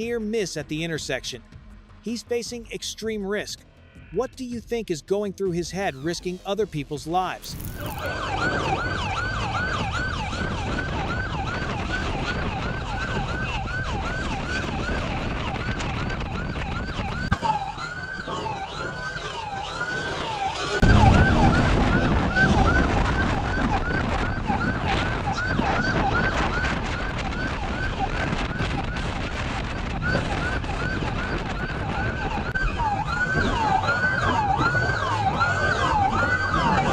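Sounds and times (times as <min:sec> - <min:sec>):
police siren yelping: 0:07.4 - 0:36.9
loud low rushing noise: 0:20.8 - 0:25.8.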